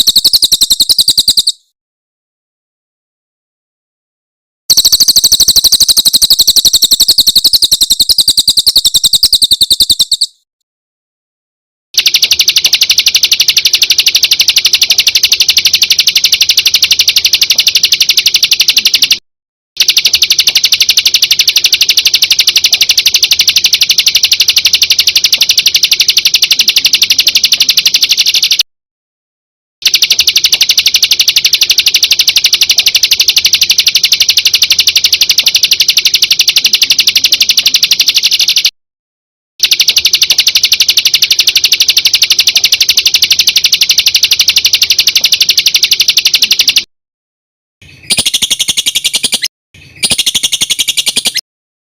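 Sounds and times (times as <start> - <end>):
songbird trills: 0.0 - 1.7, 4.7 - 10.4, 47.8 - 51.4.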